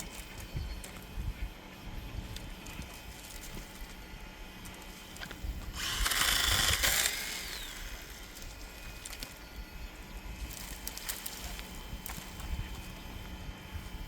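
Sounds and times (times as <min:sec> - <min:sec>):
power tool burst: 0:05.7 - 0:08.8.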